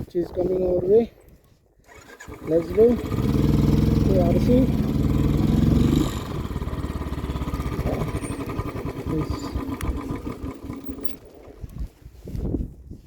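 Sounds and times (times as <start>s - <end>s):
vehicle engine running: 2.3s - 11.2s.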